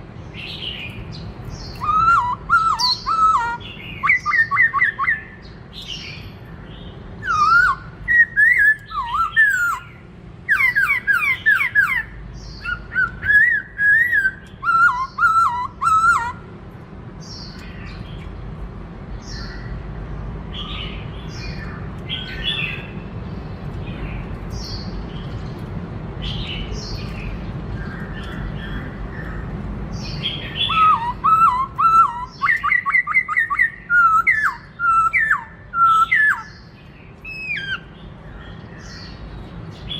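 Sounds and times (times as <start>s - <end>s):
bird singing whistled phrases: 1.6s - 6.0s, 7.2s - 9.9s, 10.5s - 16.4s, 30.3s - 36.6s, 37.2s - 37.9s.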